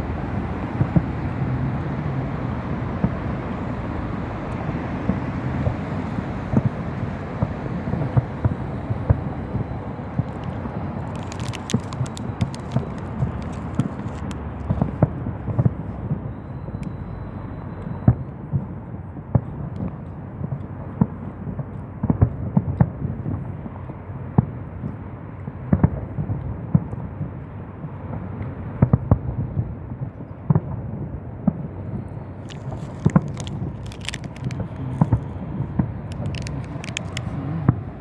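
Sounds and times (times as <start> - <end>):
fireworks bangs and pops: 10.2 - 15.8, 32.4 - 37.8.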